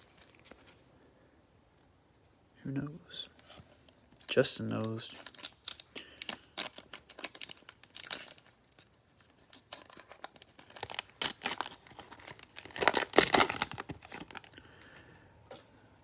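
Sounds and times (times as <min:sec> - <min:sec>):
cellophane wrapper tearing and crinkling: 0:04.4 - 0:14.6.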